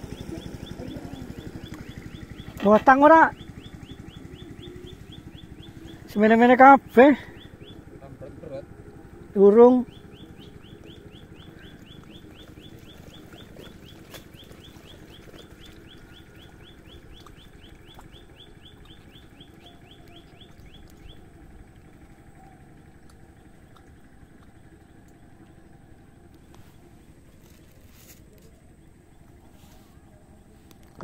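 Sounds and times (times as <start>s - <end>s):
bird chirping rapidly: 0.0s - 21.4s
outdoor background noise: 0.0s - 31.0s.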